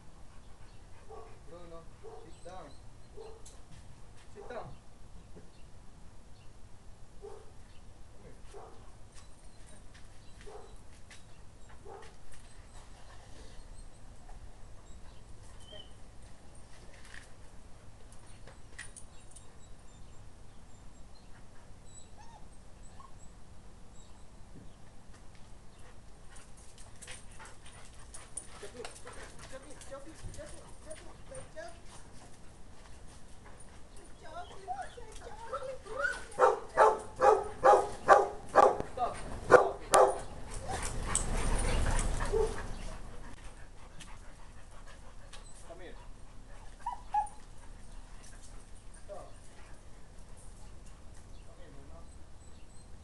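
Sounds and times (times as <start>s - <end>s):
dog barking: 7.2s - 7.5s, 36.4s - 38.8s, 39.5s - 40.3s, 42.3s - 42.6s.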